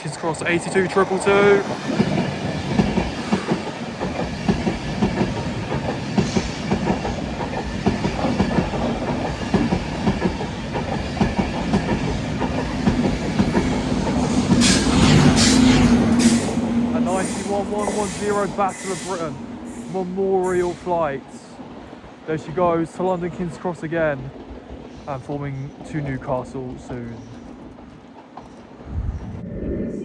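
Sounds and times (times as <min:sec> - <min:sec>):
train wheels clattering over rail joints: 0:01.7 - 0:18.4
hiss: 0:14.6 - 0:20.9.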